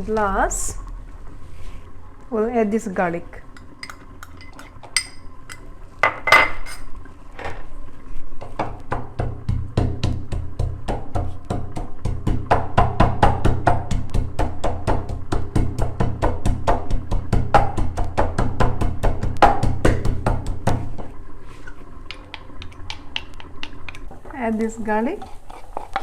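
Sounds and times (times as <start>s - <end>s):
metal utensil clinking on pot: 3.6s - 6.9s
music with fast percussive beat: 8.9s - 20.9s.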